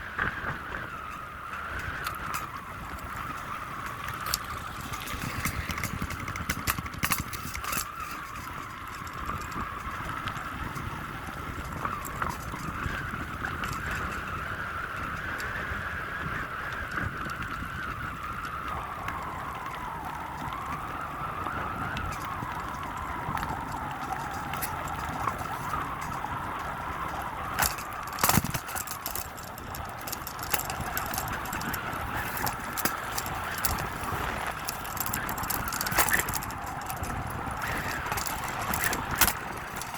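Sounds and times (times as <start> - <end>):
sharp clicks: 27.6 - 39.9.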